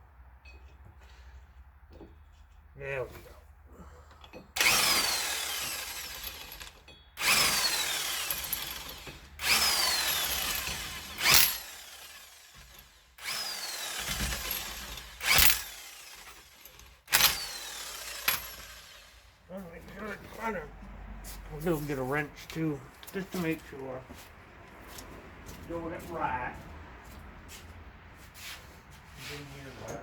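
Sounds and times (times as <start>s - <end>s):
cordless drill spinning lug nuts: 4.2s - 19.4s.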